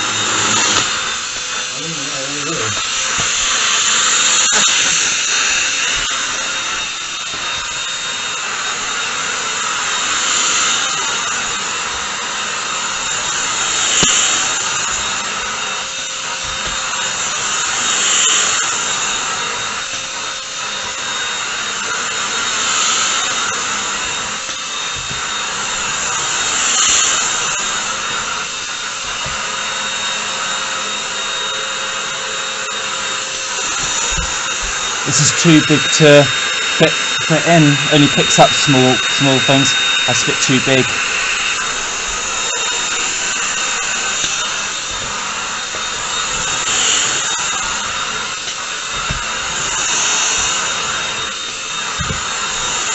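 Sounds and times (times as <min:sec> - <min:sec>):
stick vacuum cleaner whine: 0:00.0 - 0:52.9.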